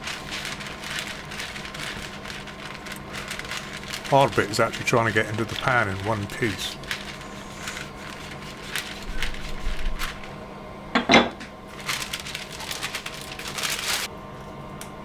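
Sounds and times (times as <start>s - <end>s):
baking paper crinkling: 0.0s - 10.4s, 11.7s - 14.1s
sharp knock on worktop: 11.0s - 11.4s.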